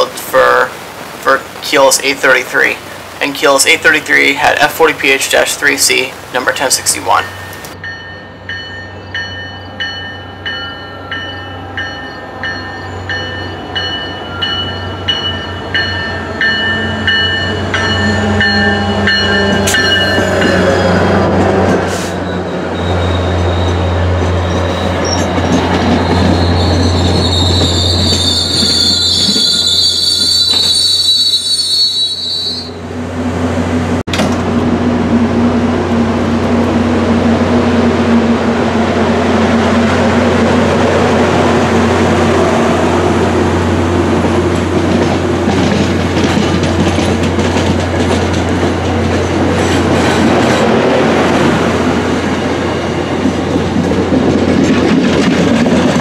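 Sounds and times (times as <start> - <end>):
rolling train coaches: 0.0 - 56.0
standing train hum: 0.0 - 56.0
diesel locomotive drone: 3.8 - 56.0
train bell ringing: 7.0 - 20.9, 26.4 - 32.8
wheel and brake squeal: 21.9 - 32.8.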